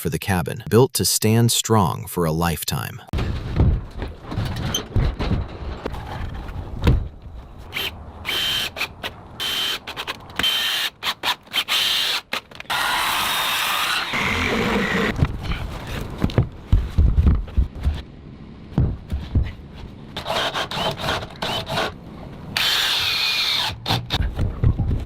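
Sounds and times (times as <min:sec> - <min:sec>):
sharp knocks on timber: 0:18.8 - 0:19.6.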